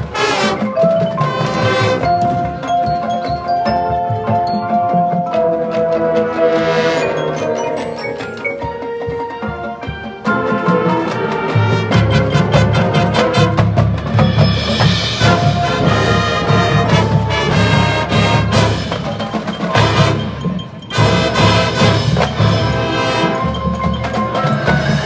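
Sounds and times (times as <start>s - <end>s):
marching band playing: 0.0s - 25.0s
rapid drum strokes: 5.6s - 25.0s.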